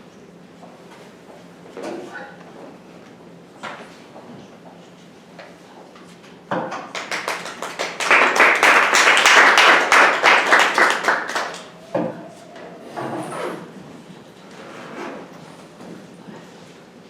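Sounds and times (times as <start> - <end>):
audience applause: 6.9 - 11.8.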